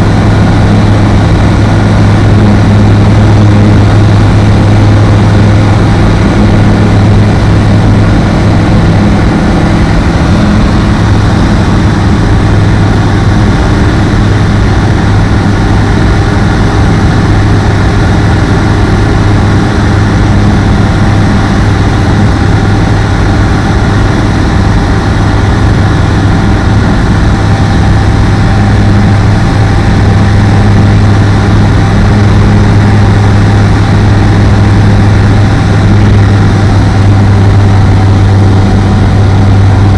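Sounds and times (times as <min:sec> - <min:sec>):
ultralight plane engine droning: 0:00.0 - 0:39.9.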